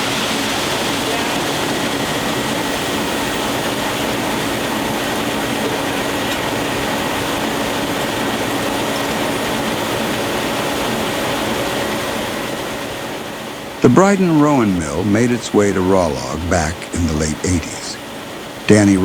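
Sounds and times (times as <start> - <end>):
faint hum and whine: 13.6 - 19.0.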